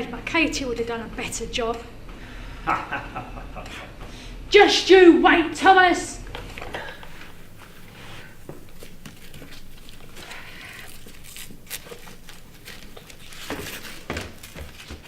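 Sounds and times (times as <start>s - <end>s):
rustling and scuffling: 6.7s - 15.0s
heavy thumps: 6.8s - 15.0s.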